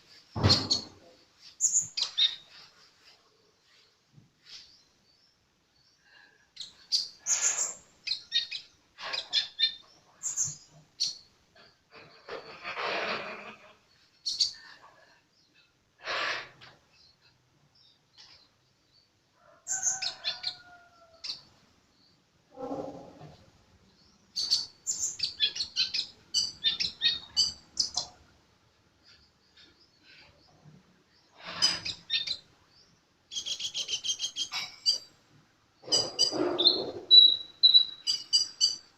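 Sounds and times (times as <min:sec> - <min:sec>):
sunbird chirping and twittering: 0:00.1 - 0:12.8, 0:13.9 - 0:15.7, 0:23.9 - 0:28.2, 0:29.0 - 0:38.9
sunbird singing high sharp chirps: 0:36.0 - 0:38.8.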